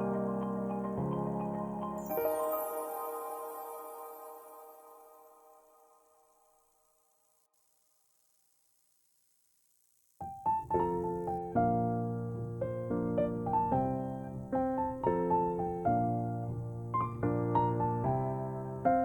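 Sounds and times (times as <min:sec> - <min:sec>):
piano playing chords and melody: 0:00.0 - 0:06.2, 0:10.3 - 0:19.0.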